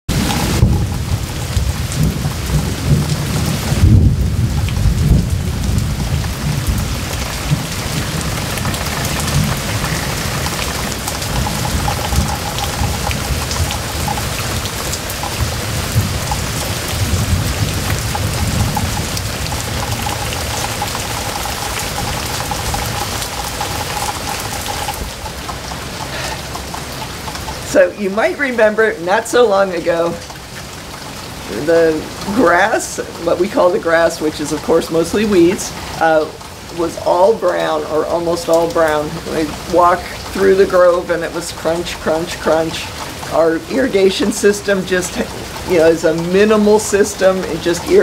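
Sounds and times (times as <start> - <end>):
low thunder rumble: 0.1 - 26.1
heavy rain on foliage: 0.1 - 48.0.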